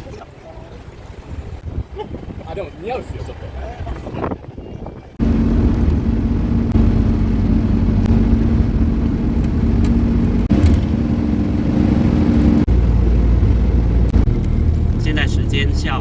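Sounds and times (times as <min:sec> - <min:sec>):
road noise: 0:00.0 - 0:16.0
car engine drone: 0:05.2 - 0:16.0.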